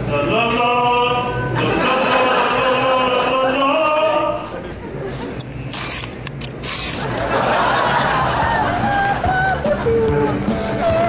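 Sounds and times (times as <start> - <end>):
person singing long notes: 8.8 - 11.0.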